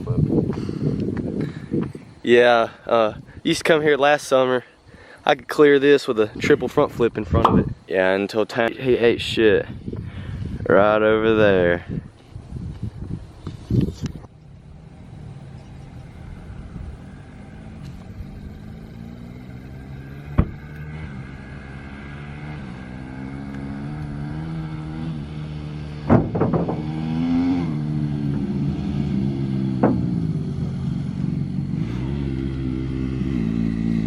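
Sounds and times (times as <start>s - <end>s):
dirt bike engine revving: 14.6s - 34.0s
sharp knocks: 26.0s - 26.9s, 29.8s - 30.2s.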